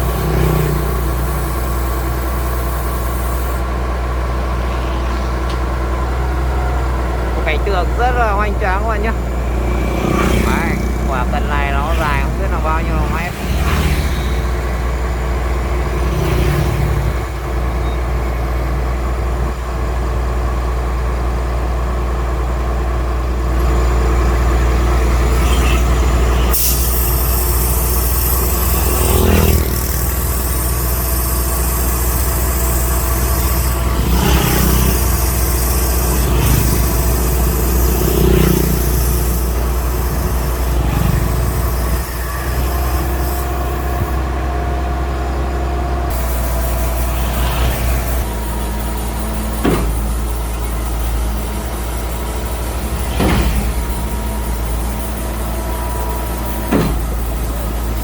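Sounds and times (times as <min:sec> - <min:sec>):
diesel engine humming: 0:00.0 - 0:58.0
loud hiss: 0:26.4 - 0:44.2, 0:46.1 - 0:58.0.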